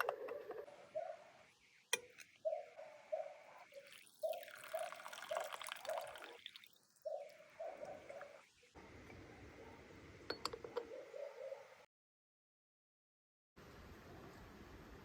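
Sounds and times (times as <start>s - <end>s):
water bubbling in teapot: 3.6s - 8.5s.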